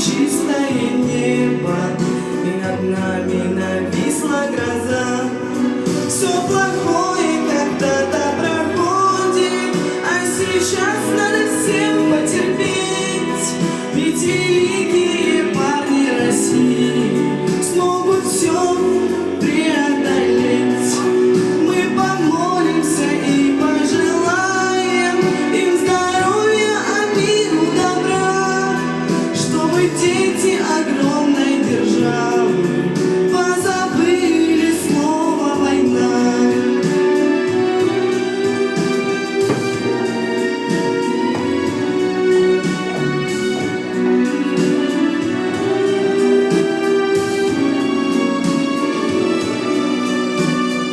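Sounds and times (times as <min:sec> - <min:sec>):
instrumental backing track: 0:00.0 - 0:50.9
person singing: 0:00.0 - 0:50.9.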